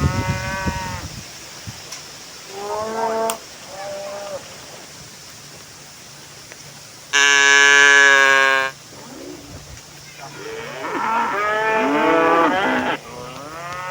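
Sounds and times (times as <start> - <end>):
cattle mooing: 10.2 - 13.9.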